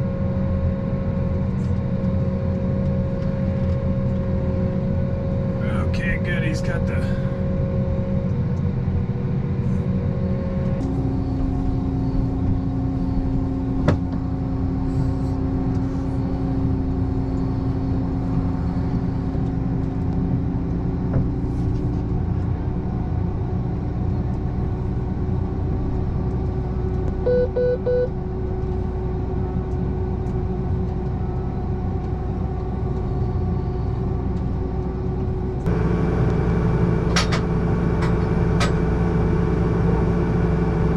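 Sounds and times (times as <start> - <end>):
vehicle engine droning: 1.2 - 40.9
short electronic beeps: 27.3 - 28.1.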